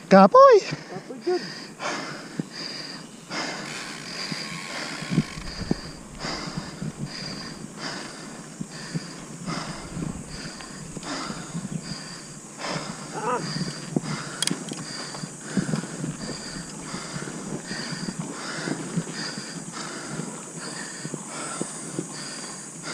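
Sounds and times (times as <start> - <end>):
heavy breathing: 0.6 - 22.9
bike rattling on dirt track: 3.4 - 19.5
voiced grunt: 13.1 - 13.5.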